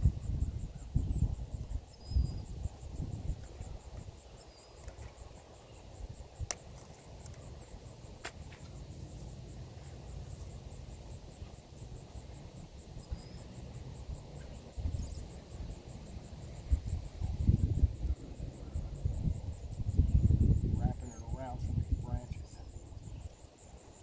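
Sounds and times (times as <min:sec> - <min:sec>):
wind rumble on microphone: 0:00.0 - 0:05.3, 0:11.3 - 0:24.0
bird chirps: 0:13.0 - 0:13.5.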